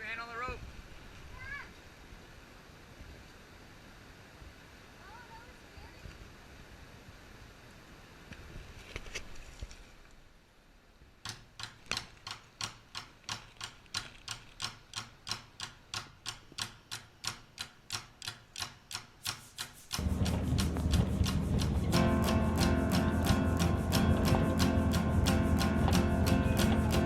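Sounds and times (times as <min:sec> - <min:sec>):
steady ticking clicks: 0:11.3 - 0:27.0
acoustic guitar music: 0:19.4 - 0:27.0.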